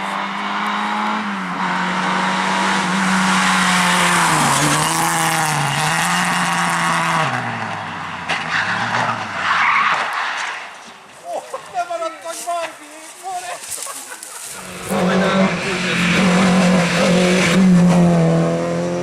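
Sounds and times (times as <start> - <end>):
rally car engine revving: 0.0 - 9.5, 14.5 - 19.0
tyres skidding: 0.0 - 19.0.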